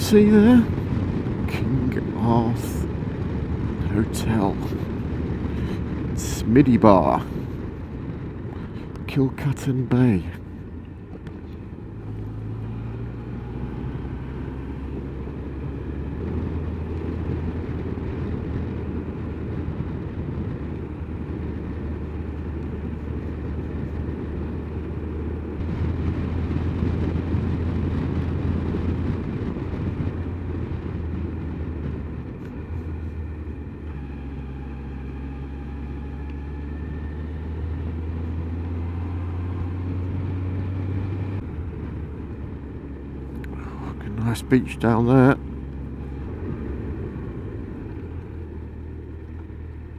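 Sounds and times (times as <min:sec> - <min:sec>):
wind rushing over microphone: 0:00.0 - 0:34.3
motorcycle engine running: 0:00.0 - 0:49.9.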